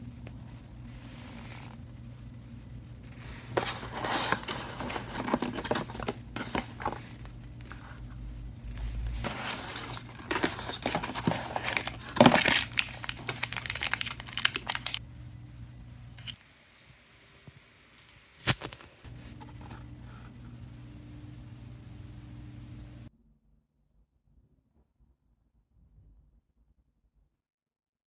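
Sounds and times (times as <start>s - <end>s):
packaging crinkling: 3.2s - 8.1s, 8.8s - 15.0s.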